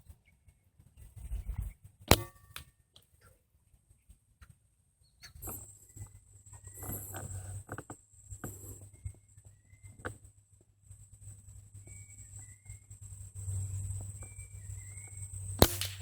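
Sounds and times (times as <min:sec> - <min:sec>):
gunshot: 0:15.6 - 0:16.0.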